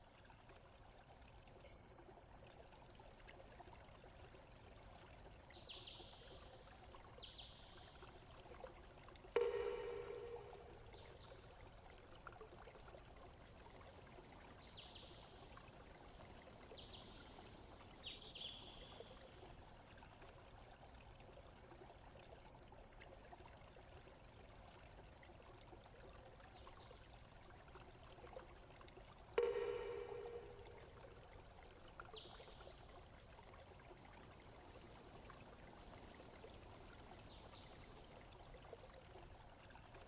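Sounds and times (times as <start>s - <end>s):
faint running water: 0.0s - 40.0s
sharp ringing tone: 9.4s - 11.2s, 29.4s - 31.2s.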